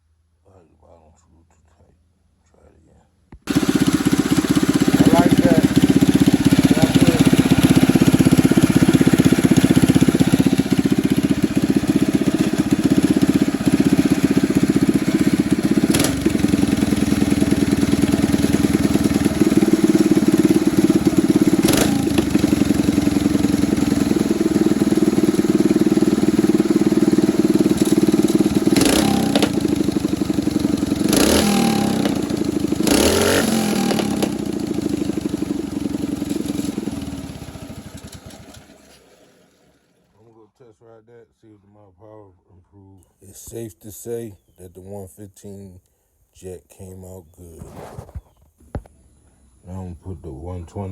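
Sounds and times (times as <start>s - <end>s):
small engine running: 3.5s - 40.4s.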